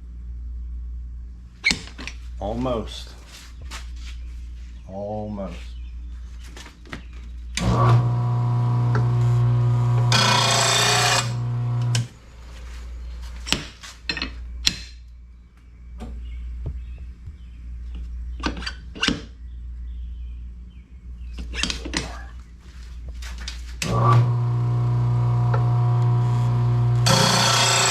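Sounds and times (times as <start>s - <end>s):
blade grinding: 7.6s - 12.1s, 23.8s - 27.9s
electric motor humming: 7.6s - 12.2s, 23.8s - 27.9s.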